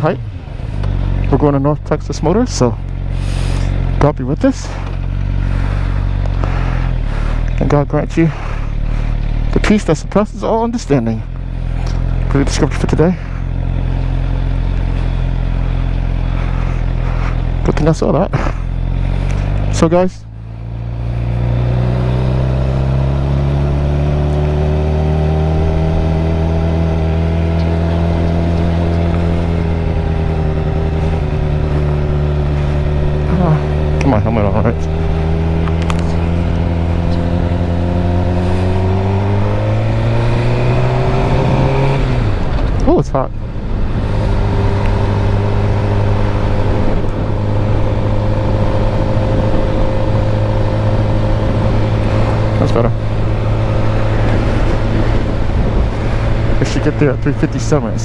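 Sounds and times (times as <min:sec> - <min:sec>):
motorcycle engine idling: 0:00.0 - 0:21.0
motorcycle engine running: 0:00.0 - 0:58.0.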